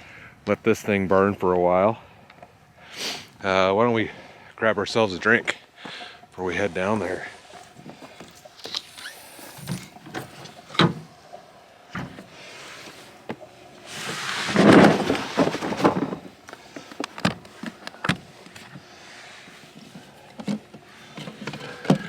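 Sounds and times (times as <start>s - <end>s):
scraping rustling noise: 13.8s - 16.4s
knocks and clatter of items: 14.6s - 16.4s.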